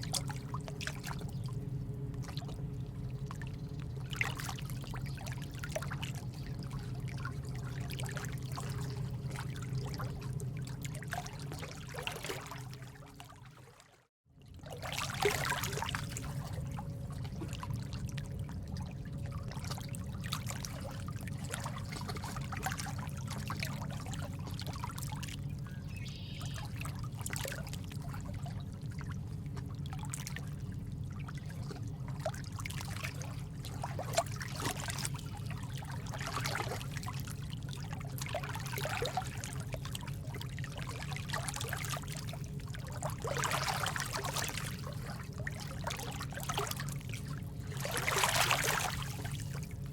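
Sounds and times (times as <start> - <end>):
water trickling and splashing: 0.0 - 49.9.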